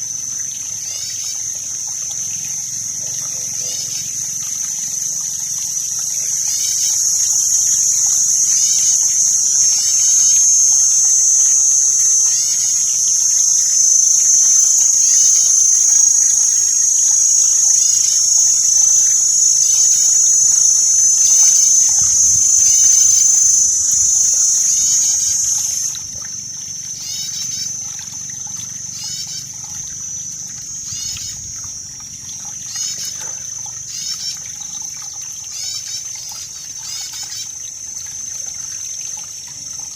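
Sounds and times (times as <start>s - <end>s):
water trickling and splashing: 0.0s - 39.9s
high-pitched shrill: 3.6s - 26.2s
short rising chirps: 3.7s - 26.1s.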